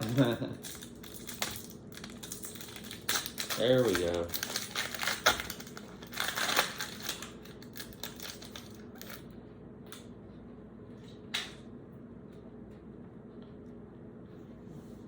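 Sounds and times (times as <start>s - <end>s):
wrapper crackling: 0.0s - 9.2s.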